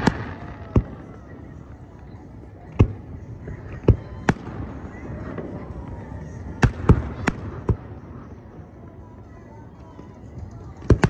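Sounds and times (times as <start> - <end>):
fireworks bangs: 0.0 - 1.6.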